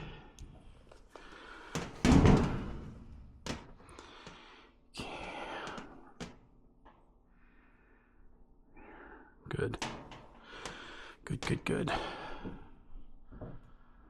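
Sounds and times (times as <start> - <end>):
heavy thump: 1.8 - 3.1.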